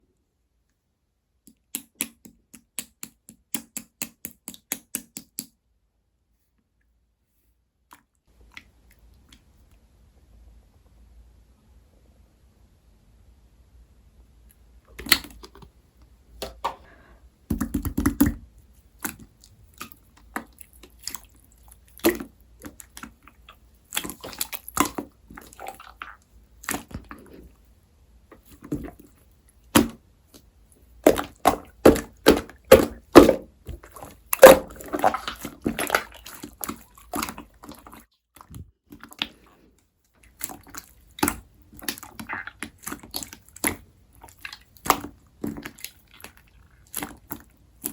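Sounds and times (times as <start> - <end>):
slime squishing and popping: 31.0 - 37.9, 40.4 - 47.9.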